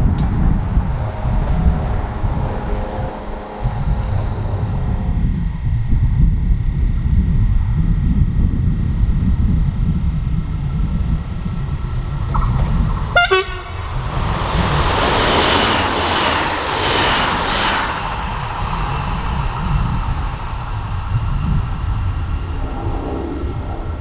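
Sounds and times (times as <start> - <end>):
train horn blast: 0.0 - 6.0, 11.4 - 21.6
train passing: 0.0 - 6.8, 9.0 - 24.0
low rumble: 0.0 - 24.0.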